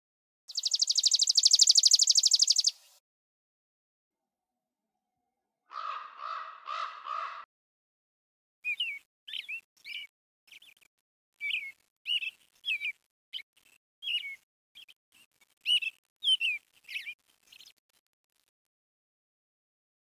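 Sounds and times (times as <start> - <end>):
songbird singing: 0.5 - 3.0, 8.6 - 15.0, 15.6 - 17.8.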